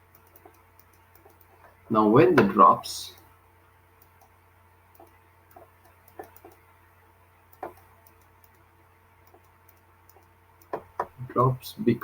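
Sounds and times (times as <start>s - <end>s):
steady low hum: 0.0s - 12.0s
soft clicks and taps: 7.5s - 11.3s.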